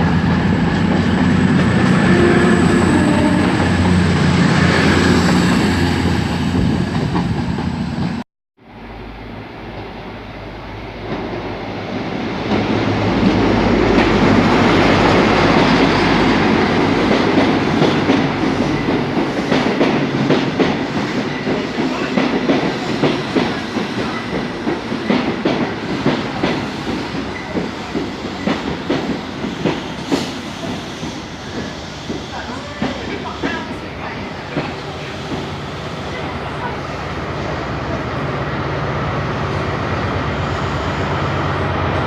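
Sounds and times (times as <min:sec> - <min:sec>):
train rumbling past: 0:00.0 - 0:42.0.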